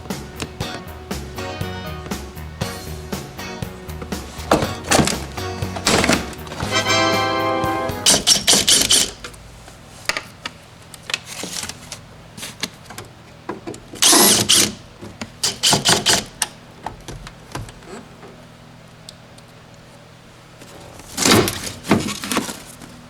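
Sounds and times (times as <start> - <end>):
tool clicking and rattling: 4.0 - 6.8, 8.1 - 9.4, 14.0 - 14.8.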